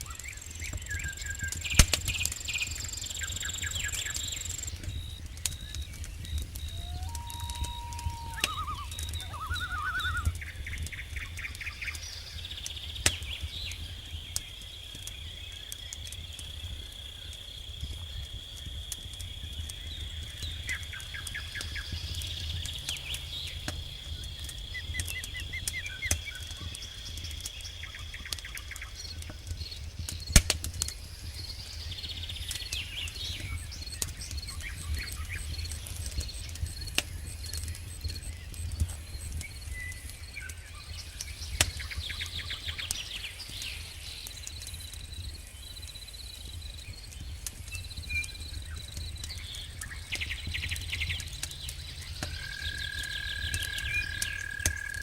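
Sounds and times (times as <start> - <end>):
bird-like chirps: 0.0 - 14.5
campfire crackling and popping: 0.0 - 55.0
insect trilling: 6.6 - 10.3.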